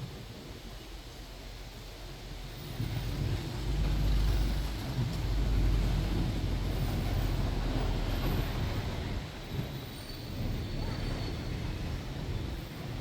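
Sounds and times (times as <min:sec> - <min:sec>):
bus engine and road rumble: 0:00.0 - 0:13.0
street noise: 0:00.0 - 0:13.0
wind hiss: 0:00.0 - 0:13.0.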